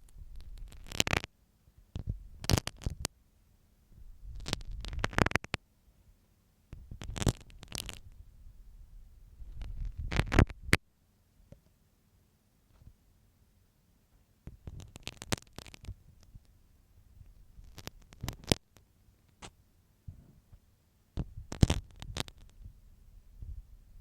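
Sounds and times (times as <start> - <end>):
pin scratching microphone: 0.0 - 1.3, 2.0 - 3.1, 4.2 - 5.6, 6.8 - 8.2, 9.4 - 10.8, 14.6 - 16.3, 17.3 - 18.8, 21.2 - 22.6.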